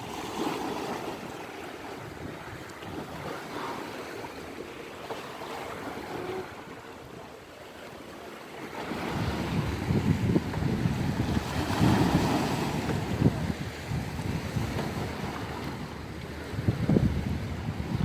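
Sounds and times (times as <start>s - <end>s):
sea waves washing on shore: 0.0s - 18.0s
wind buffeting microphone: 8.8s - 18.0s.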